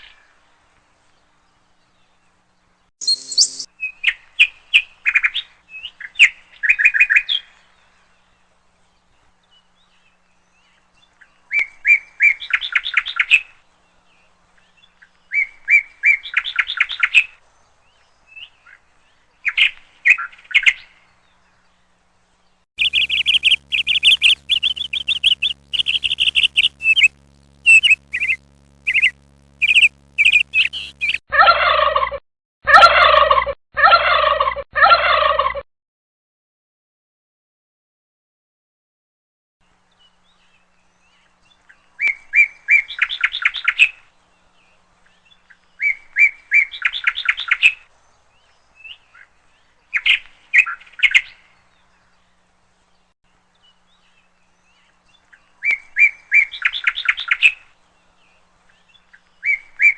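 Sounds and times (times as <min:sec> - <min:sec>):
songbirds chirping: 0:00.0 - 0:03.7, 0:13.5 - 0:31.2
turkey gobbling: 0:27.8 - 0:35.6.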